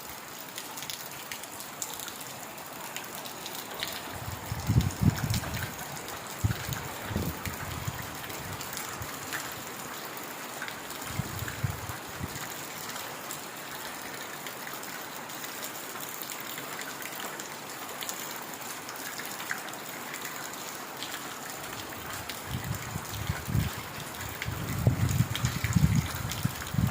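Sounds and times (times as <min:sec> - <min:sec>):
heavy rain in forest: 0:00.0 - 0:26.9
rain drop ticks: 0:02.9 - 0:09.6, 0:21.8 - 0:26.9.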